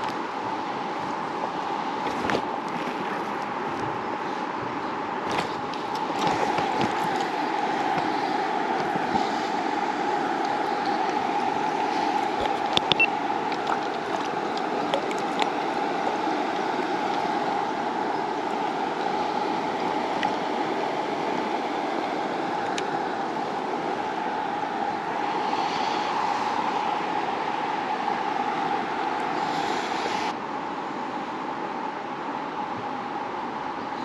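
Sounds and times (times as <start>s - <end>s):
river water flowing: 0.0s - 34.0s.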